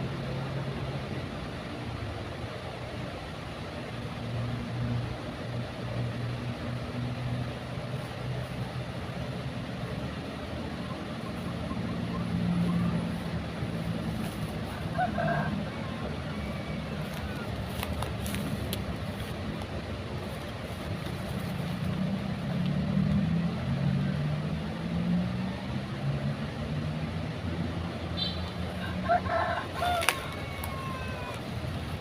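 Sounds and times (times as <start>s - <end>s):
low engine drone: 0.0s - 32.0s
outdoor background hiss: 0.0s - 32.0s.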